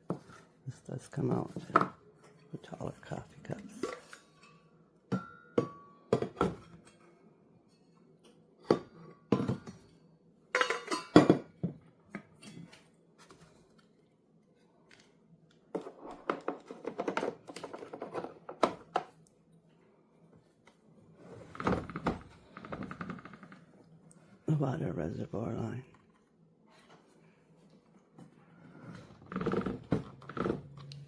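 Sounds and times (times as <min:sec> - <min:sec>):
knocks and clinks of coffee maker and cup: 0:05.1 - 0:06.9, 0:08.6 - 0:09.8, 0:10.6 - 0:12.8.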